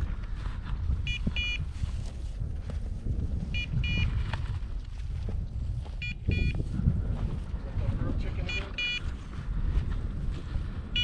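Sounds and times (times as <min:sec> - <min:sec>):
wind rumble on microphone: 0:00.0 - 0:11.0
short high electronic beeps: 0:06.0 - 0:06.5, 0:08.5 - 0:09.0.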